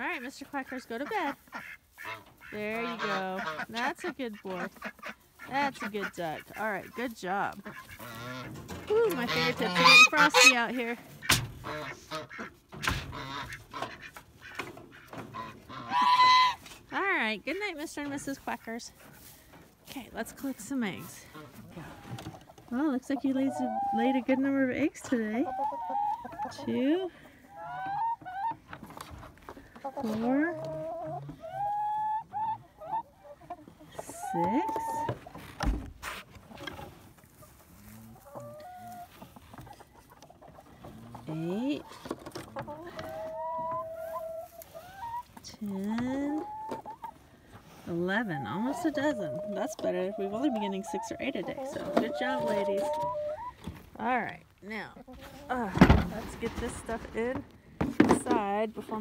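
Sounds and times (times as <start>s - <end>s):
geese honking: 0.0s - 18.6s, 20.4s - 28.6s, 29.8s - 35.2s
ducks quacking: 0.0s - 19.3s, 20.2s - 28.7s
hens clucking: 0.0s - 59.0s
thump: 55.7s - 56.4s.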